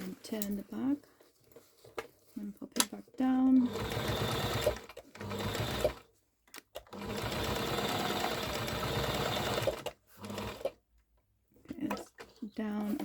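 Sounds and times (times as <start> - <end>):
sewing machine stitching: 3.6 - 6.1, 6.8 - 10.8.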